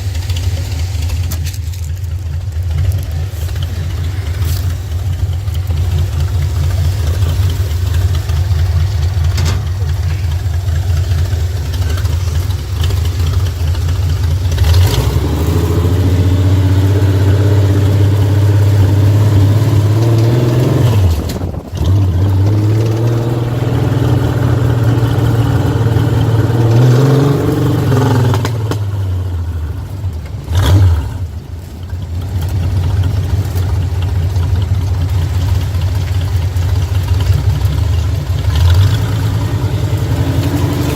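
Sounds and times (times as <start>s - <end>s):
engine idling and revving: 0.0s - 40.9s.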